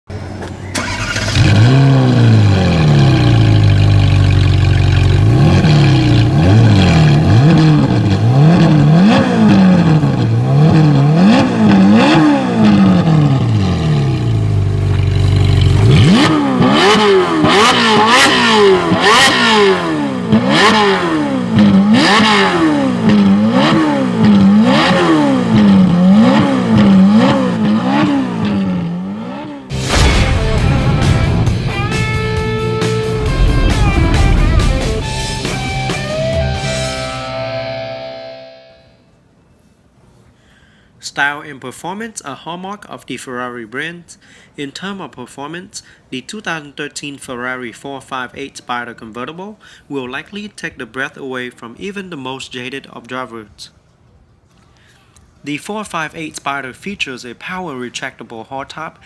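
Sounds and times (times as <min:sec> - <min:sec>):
car engine revving: 0:00.2 - 0:38.1
exhaust cracks: 0:00.3 - 0:28.9, 0:29.7 - 0:37.2.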